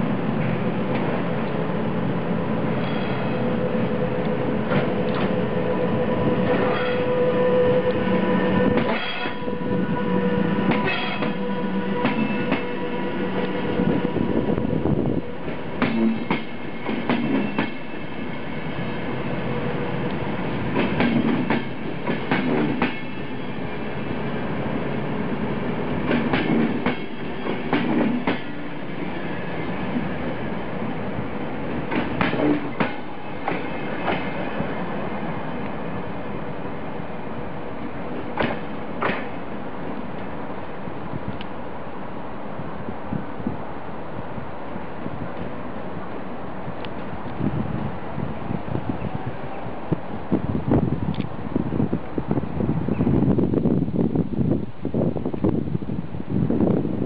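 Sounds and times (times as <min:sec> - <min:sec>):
passenger train rumbling past: 0:00.0 - 0:57.0
wheel clacks over rail joints: 0:38.2 - 0:39.4.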